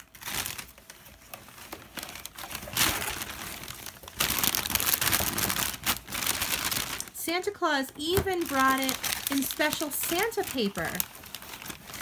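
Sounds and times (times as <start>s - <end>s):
wrapping paper crumpling: 0.0s - 12.0s.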